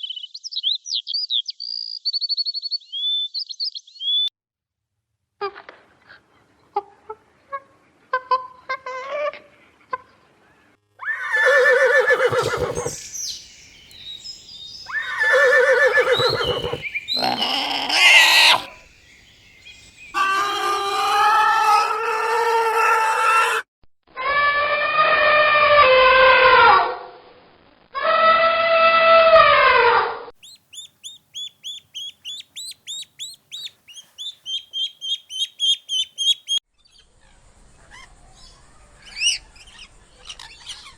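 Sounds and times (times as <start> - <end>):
long wavering animal calls: 11.1 - 13.0, 14.8 - 18.9, 20.1 - 23.6
long steady animal calls: 11.1 - 23.6, 30.4 - 36.6
shrill squeal: 14.9 - 18.7.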